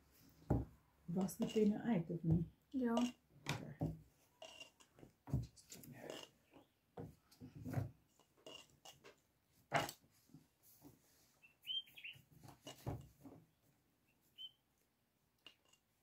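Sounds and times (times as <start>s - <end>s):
small birds chirping: 11.4s - 12.3s, 14.0s - 14.6s.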